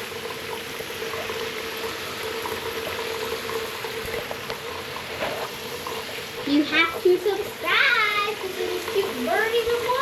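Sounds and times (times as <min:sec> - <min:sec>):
shower water spraying: 0:00.0 - 0:10.0.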